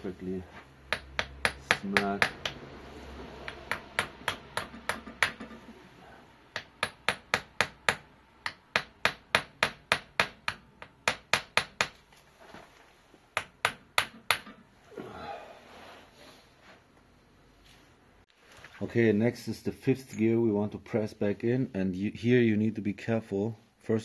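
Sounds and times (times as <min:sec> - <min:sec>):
small hammer tapping metal: 0:00.9 - 0:02.6, 0:03.4 - 0:05.6.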